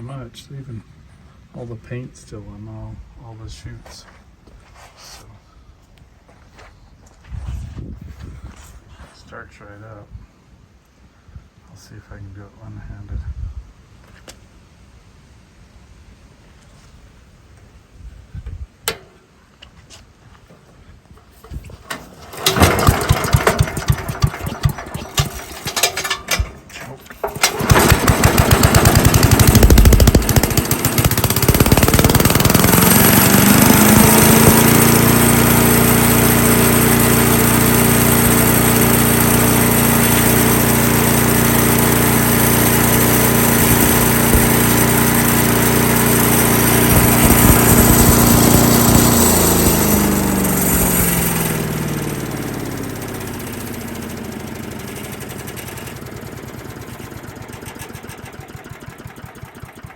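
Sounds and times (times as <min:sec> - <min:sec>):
small engine running: 0:21.4 - 0:59.9.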